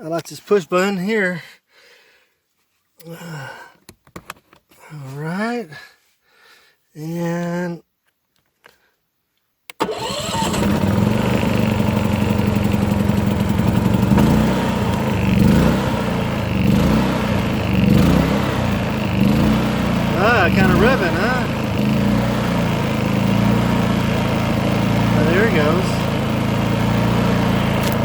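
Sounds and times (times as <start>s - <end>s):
generator engine starting and revving: 9.8s - 28.0s.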